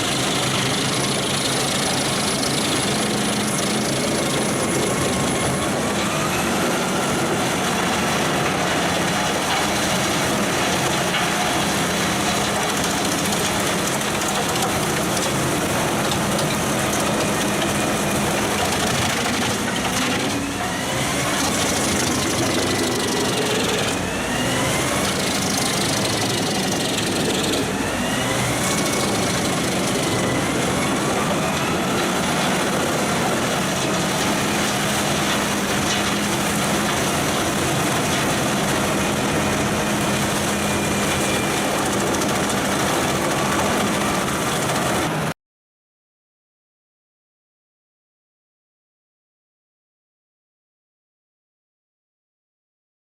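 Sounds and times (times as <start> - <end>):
wood chipper engine drone: 0.0 - 45.3
wood being chipped: 21.4 - 33.1.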